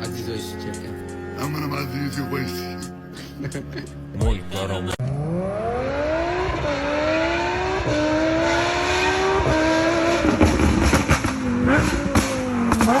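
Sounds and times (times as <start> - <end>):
sports car exhaust accelerating: 5.0 - 13.0
exhaust crackles and pops: 10.2 - 13.0.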